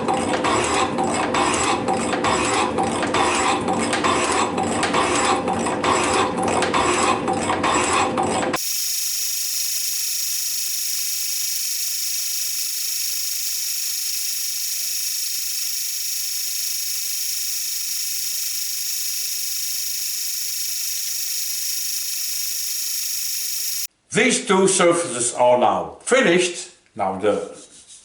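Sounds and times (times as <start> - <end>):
high-pitched machine whir: 8.6 - 23.9.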